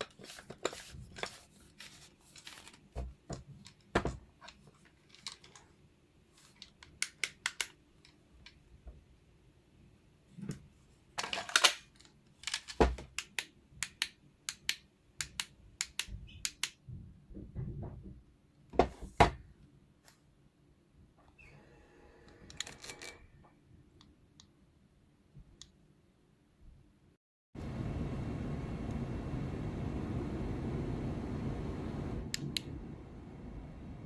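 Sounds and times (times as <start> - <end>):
faint steady hum: 27.6 - 34.0.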